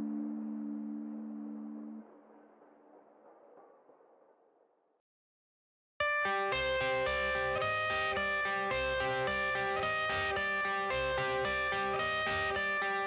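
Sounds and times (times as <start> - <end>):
guitar picking repeating pattern: 6.2 - 13.0.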